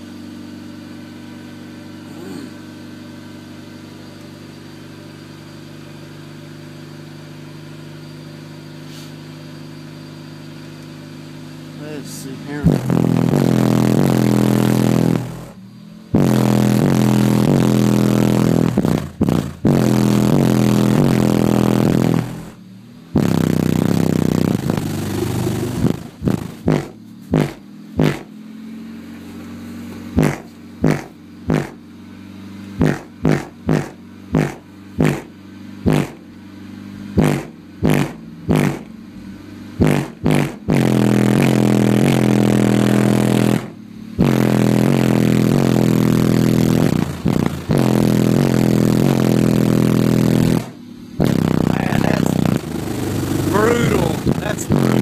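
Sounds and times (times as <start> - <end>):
subwoofer playing bass notes: 11.4 - 28.3, 30.0 - 31.8, 32.8 - 36.3, 37.0 - 38.9, 39.7 - 55.0
short bass hits: 11.7 - 28.3, 30.0 - 31.8, 32.8 - 36.3, 37.1 - 39.0, 39.8 - 55.0.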